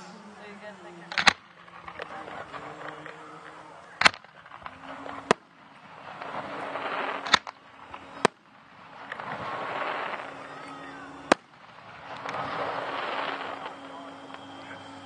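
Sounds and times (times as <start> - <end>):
firework shells bursting: 0.0 - 15.0
rising hiss: 0.0 - 15.0.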